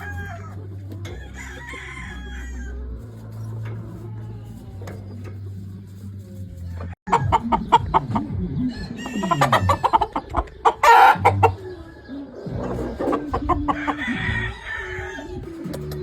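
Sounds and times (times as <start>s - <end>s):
rooster crowing: 0.0s - 2.9s, 8.7s - 10.0s, 10.8s - 11.4s, 13.6s - 15.4s
chickens clucking: 0.0s - 16.0s.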